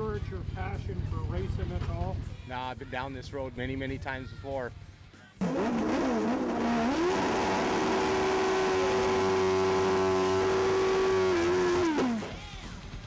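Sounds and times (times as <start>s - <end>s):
motorcycle engine revving: 5.4s - 12.4s.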